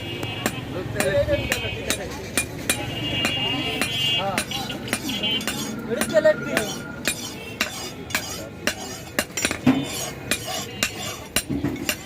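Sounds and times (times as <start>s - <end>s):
hammer striking iron on anvil: 0.4s - 12.0s.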